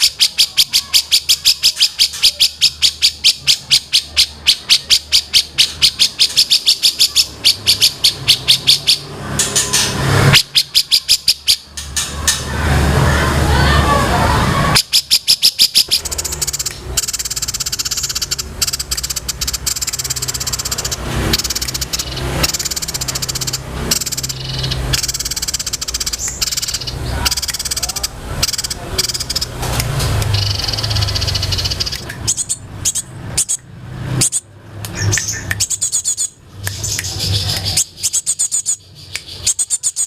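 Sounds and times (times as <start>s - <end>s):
songbird rattling trill: 0.0s - 12.0s, 14.8s - 29.6s, 30.2s - 33.6s.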